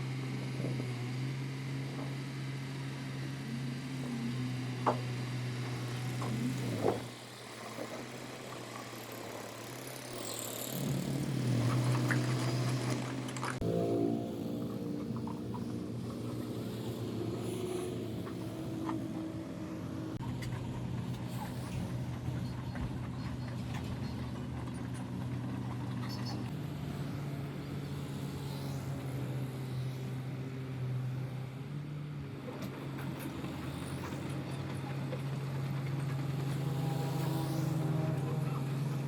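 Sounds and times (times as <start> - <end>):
engine running steadily: 0.0 - 39.0.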